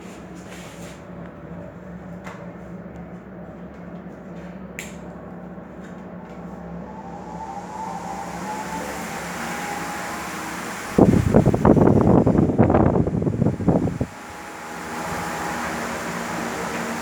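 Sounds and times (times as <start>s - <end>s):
oscillating fan motor hum: 0.1s - 17.0s
fan click: 4.8s - 5.2s, 5.8s - 17.0s.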